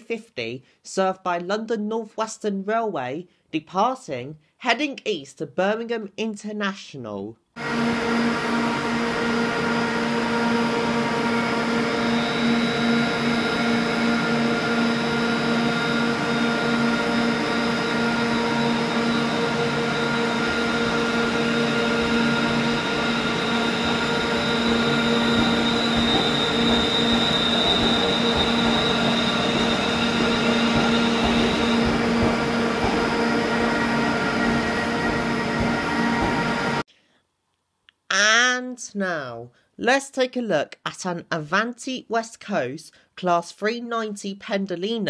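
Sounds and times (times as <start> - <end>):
electric train droning: 7.6 - 36.9
extraction blowers: 7.6 - 36.9
high whine: 7.6 - 36.9.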